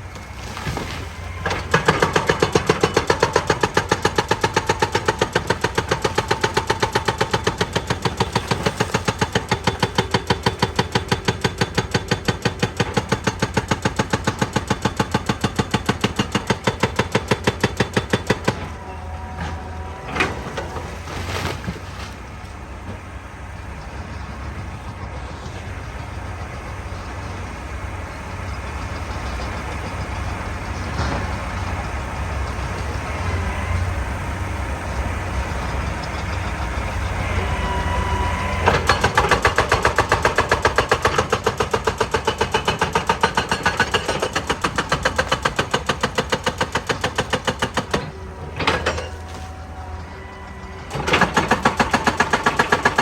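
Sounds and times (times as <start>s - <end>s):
diesel engine running: 0.0s - 53.0s
hydraulic rock breaker hammering: 0.0s - 53.0s.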